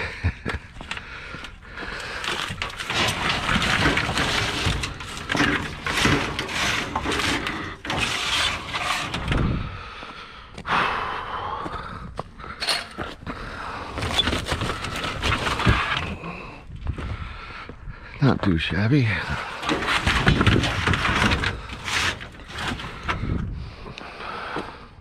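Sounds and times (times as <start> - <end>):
scrap scraping and clattering: 0.5 - 9.7, 12.6 - 13.2, 13.9 - 16.6, 19.1 - 24.0.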